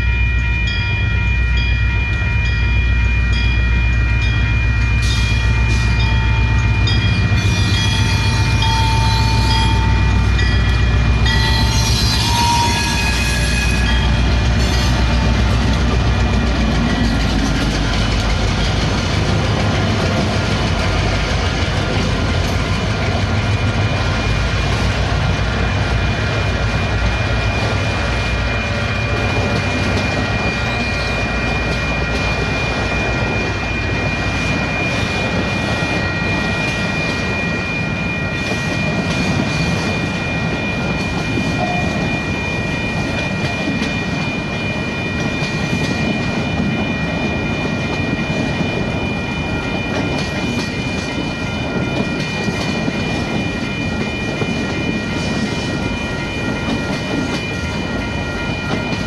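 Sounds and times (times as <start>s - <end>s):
locomotive engine rumble: 0.7s - 34.4s
train wheels clickety-clack on rails: 1.5s - 59.0s.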